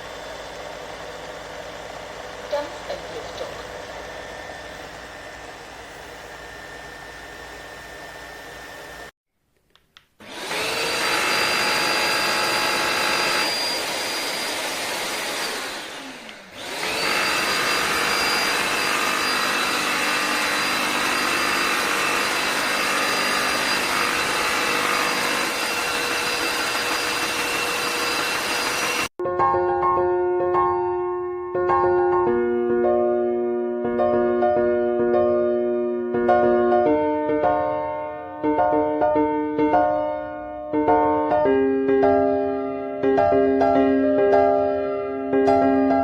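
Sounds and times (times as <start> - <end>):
vacuum motor whining: 0.0 - 9.1, 10.2 - 29.2.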